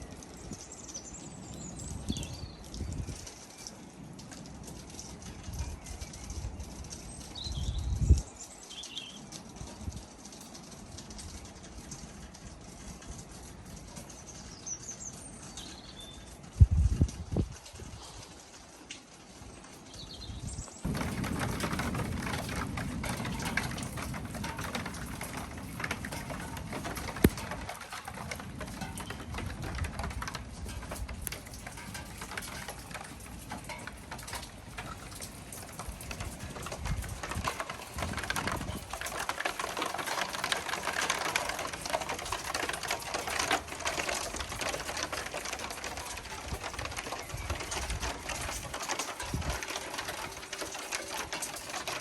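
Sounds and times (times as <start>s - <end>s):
rain pattering: 0.0s - 52.0s
low thunder rumbles: 20.4s - 51.8s.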